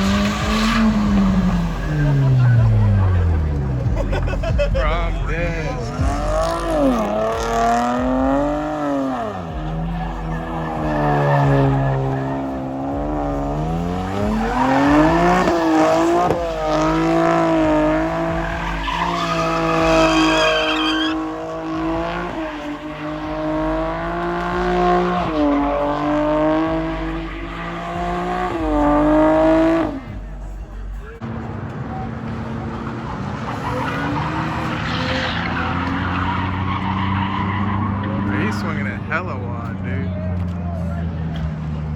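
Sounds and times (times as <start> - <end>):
car engine revving: 0.0 - 41.9
tyres squealing: 5.4 - 30.9, 32.9 - 39.8.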